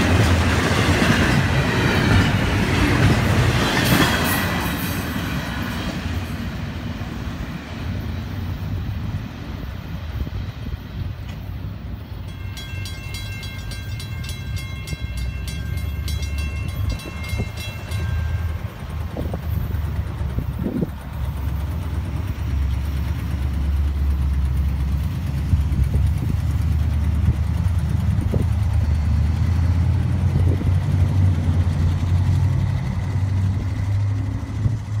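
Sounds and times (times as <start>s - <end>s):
freight train rumble: 0.0s - 35.0s
railroad crossing bell ringing: 11.8s - 25.1s.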